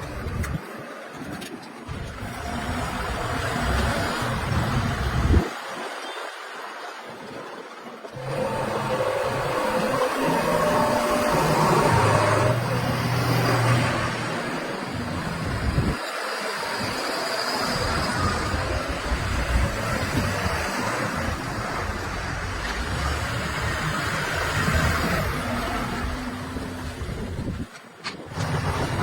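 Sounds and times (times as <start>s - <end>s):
traffic-like noise: 0.0s - 7.0s, 8.1s - 29.0s
heavy diesel machinery rumble: 8.2s - 16.0s.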